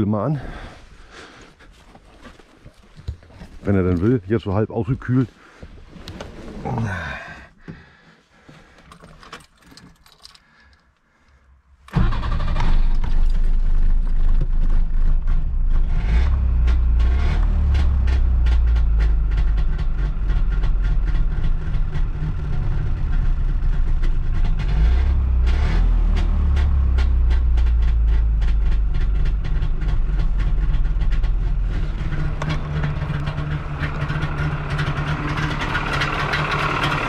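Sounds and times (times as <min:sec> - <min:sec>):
two-stroke engine running: 0:26.4 - 0:37.0.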